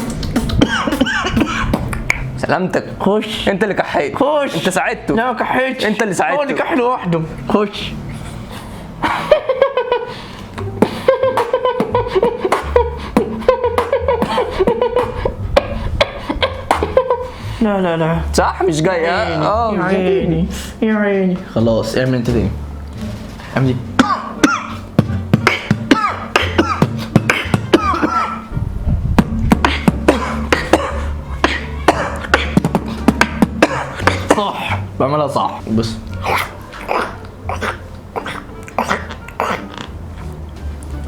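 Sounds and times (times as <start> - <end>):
beatboxing clicks and bass thumps: 0.0 - 2.4, 10.6 - 17.2, 24.0 - 34.4.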